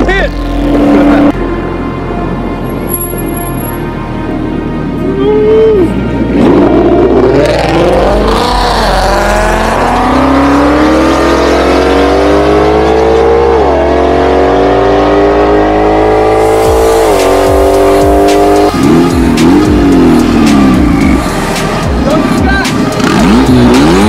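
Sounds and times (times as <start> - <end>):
background music with bass line: 0.0 - 24.0
car engine revving: 6.1 - 24.0.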